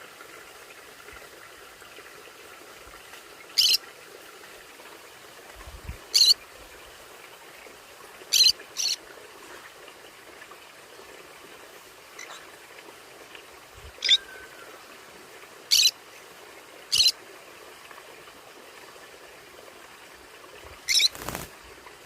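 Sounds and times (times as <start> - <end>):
faint steady hiss: 0.0 - 22.0
parrot calls: 3.6 - 3.8, 6.2 - 6.4, 15.7 - 15.9, 20.9 - 21.4.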